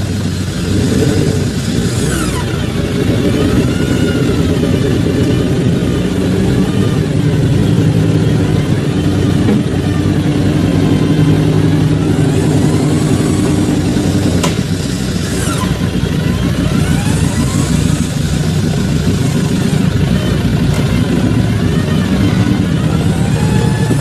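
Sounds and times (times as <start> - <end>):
engine running under load: 0.0 - 24.0
sharp click: 14.4 - 14.7.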